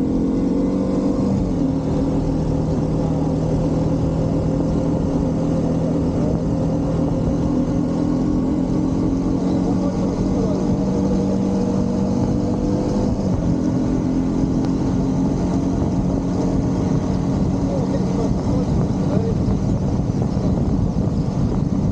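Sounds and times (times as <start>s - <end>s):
motorcycle engine running: 0.0s - 21.9s
road noise: 0.0s - 21.9s
wind rushing: 10.6s - 21.9s.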